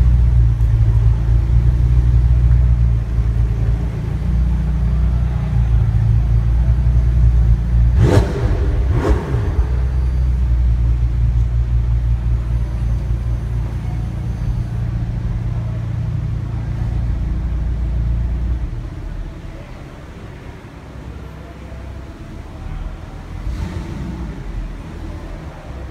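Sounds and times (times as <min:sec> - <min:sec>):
car engine idling: 0:00.0 - 0:25.9
engine revving: 0:07.8 - 0:11.0, 0:23.3 - 0:25.1.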